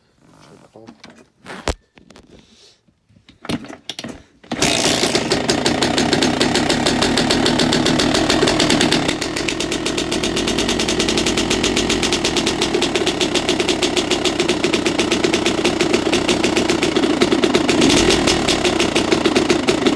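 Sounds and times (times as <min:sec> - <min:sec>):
dirt bike engine running: 0:04.6 - 0:19.9.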